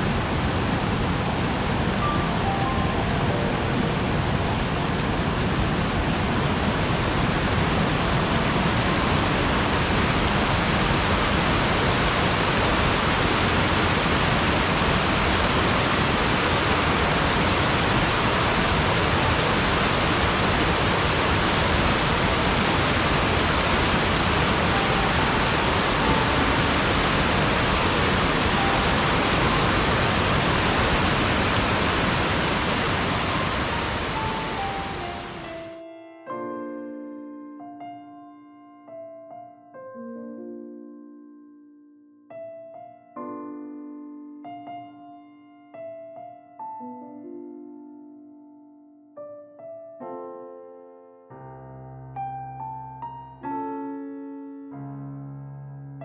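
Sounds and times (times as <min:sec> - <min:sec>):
waterfall rushing: 0:00.0 - 0:35.8.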